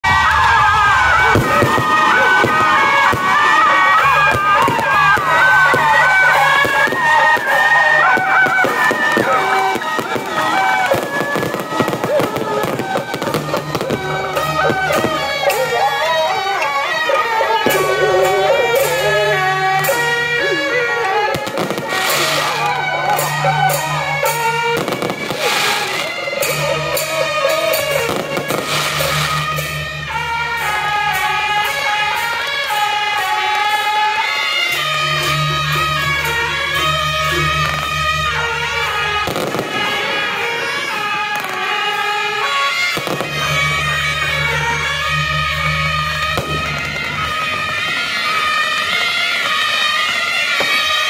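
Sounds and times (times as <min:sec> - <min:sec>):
festival music with low beat: 0:00.0 - 0:49.5
firecrackers crackling: 0:00.0 - 0:51.0
reedy wind instrument melody: 0:00.0 - 0:51.0
sharp bangs: 0:21.0 - 0:51.0.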